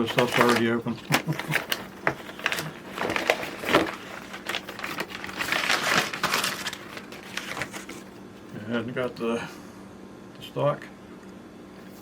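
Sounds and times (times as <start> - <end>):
packaging rustling and scraping: 0.0 - 8.5.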